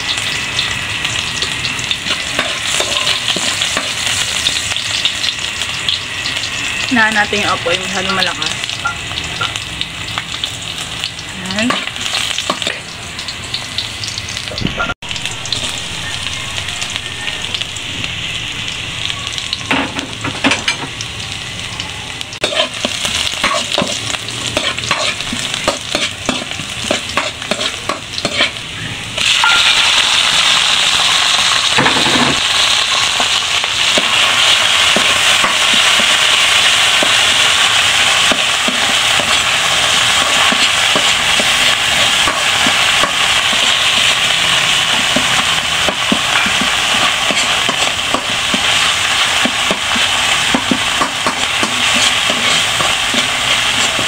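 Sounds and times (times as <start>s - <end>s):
food sizzling in hot oil: 0.0s - 54.0s
spatula scraping and tapping pan: 22.4s - 28.6s, 44.9s - 48.7s, 49.4s - 54.0s.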